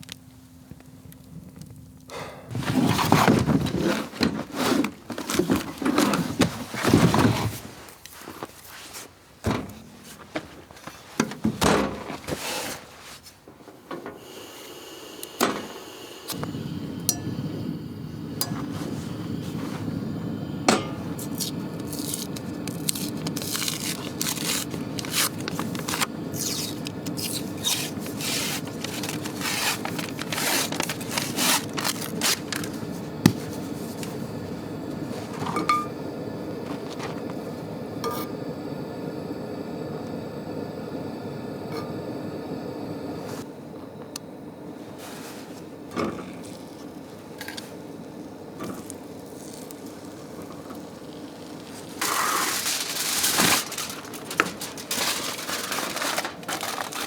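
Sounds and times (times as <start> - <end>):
low rush of fire: 16.0 - 55.6
scraping and rubbing strokes: 21.2 - 32.8.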